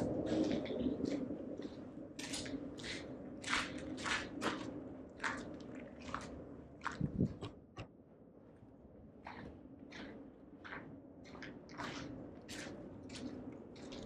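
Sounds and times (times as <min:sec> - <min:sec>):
footsteps crunching on debris: 0:00.0 - 0:07.5.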